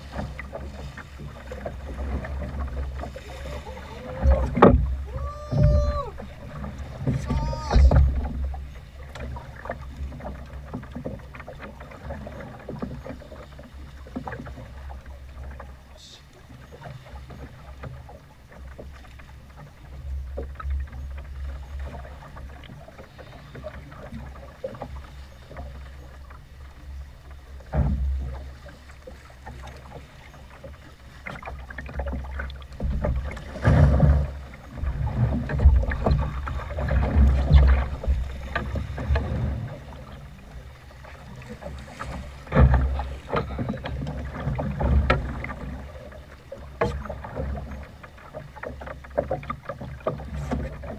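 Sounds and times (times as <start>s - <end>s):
water slapping boat hull: 0.0s - 50.9s
wind buffeting microphone: 3.1s - 8.3s.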